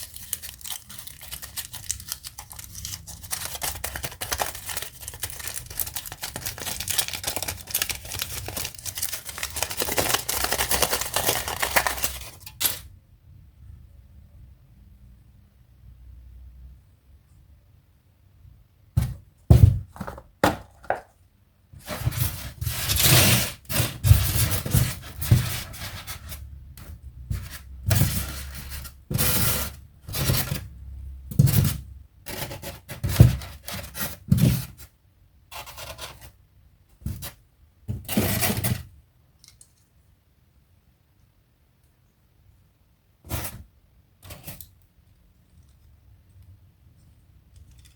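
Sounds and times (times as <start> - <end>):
toy packaging scraping and rubbing: 0.0 - 12.9, 21.8 - 26.6, 27.2 - 30.7, 31.4 - 34.9, 35.5 - 36.4, 38.0 - 38.9.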